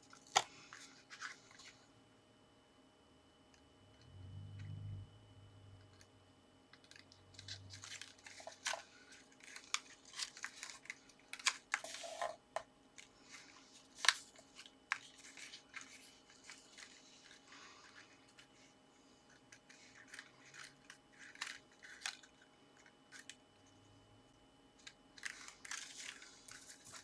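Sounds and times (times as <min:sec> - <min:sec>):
paper crinkling: 0:00.1 - 0:01.9, 0:06.7 - 0:12.4, 0:13.0 - 0:23.9, 0:24.8 - 0:27.0.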